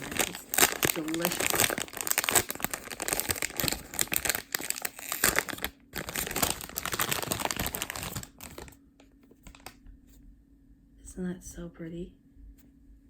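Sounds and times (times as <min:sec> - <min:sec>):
plastic wrapping crinkling: 0:00.0 - 0:09.8.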